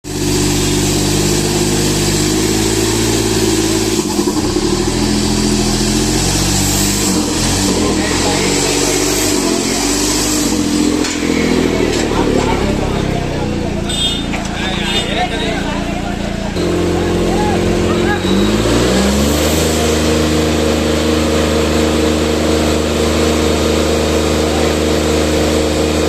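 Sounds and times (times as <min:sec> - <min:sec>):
tractor diesel engine labouring: 0:00.0 - 0:26.0.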